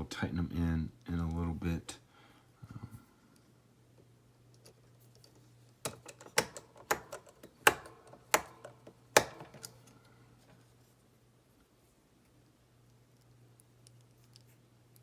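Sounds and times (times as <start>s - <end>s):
faint steady hum: 0.0s - 15.0s
plastic parts clicking: 4.5s - 10.0s.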